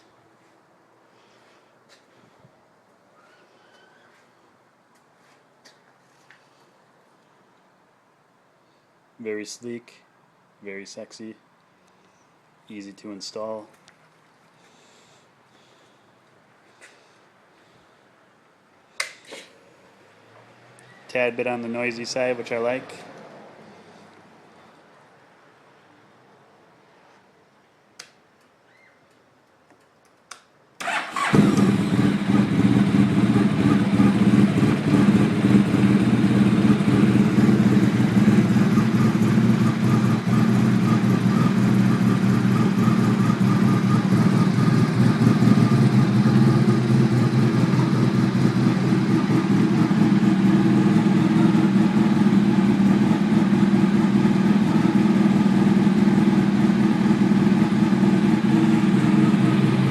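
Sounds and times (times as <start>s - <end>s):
motorcycle engine starting and idling: 30.8s - 59.9s.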